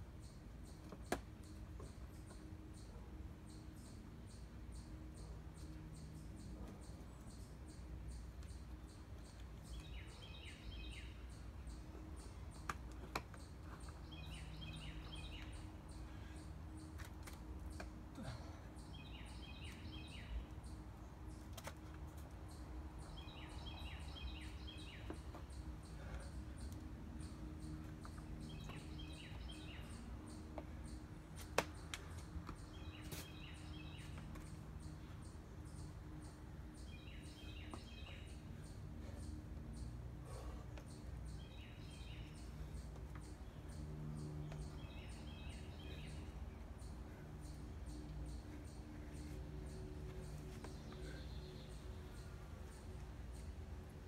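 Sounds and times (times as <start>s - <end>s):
faint outdoor background noise: 0.0s - 54.0s.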